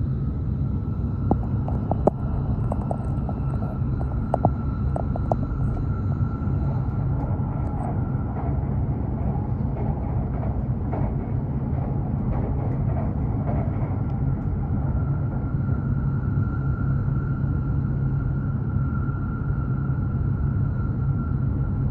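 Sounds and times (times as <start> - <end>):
faint high hum: 0.0 - 21.9
train low rumble: 0.0 - 21.9.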